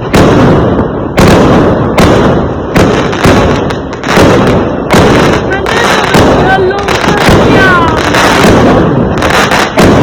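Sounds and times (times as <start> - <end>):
fireworks banging: 0.0 - 10.0.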